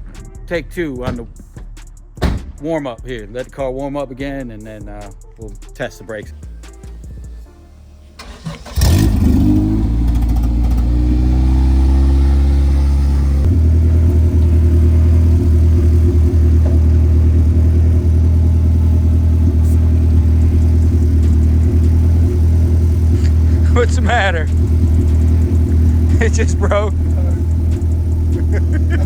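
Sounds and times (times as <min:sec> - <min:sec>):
car engine starting and idling: 0:06.4 - 0:29.0.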